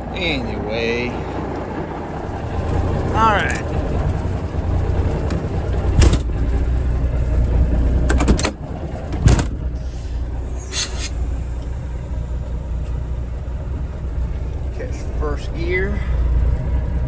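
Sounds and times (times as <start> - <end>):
truck engine rumble: 0.0 - 17.0
sharp clunks and knocks: 5.0 - 9.9.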